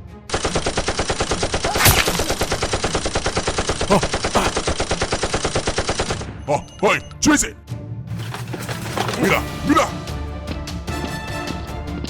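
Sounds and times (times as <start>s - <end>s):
machine-gun fire: 0.3s - 6.3s.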